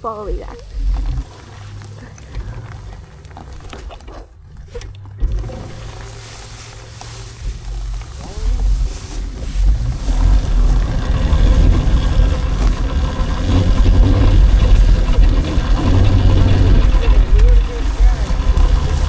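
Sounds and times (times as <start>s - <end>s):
low rumble: 0.0s - 19.0s
wind buffeting microphone: 5.2s - 19.0s.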